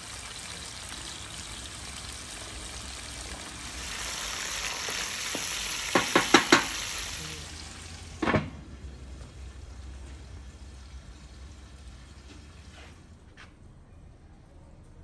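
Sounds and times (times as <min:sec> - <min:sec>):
food sizzling in a pan: 0:00.0 - 0:08.2
glass lid knocking on pan: 0:05.4 - 0:06.7.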